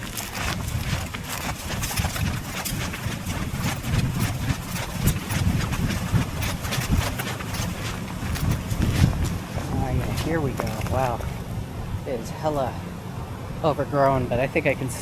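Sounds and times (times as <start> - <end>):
footsteps crunching on ground: 0.0 - 11.7
wind buffeting microphone: 0.0 - 14.6.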